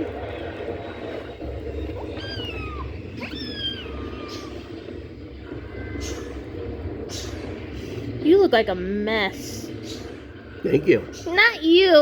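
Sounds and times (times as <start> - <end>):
steady low hum: 0.0 - 12.0
cat meowing: 1.6 - 6.6.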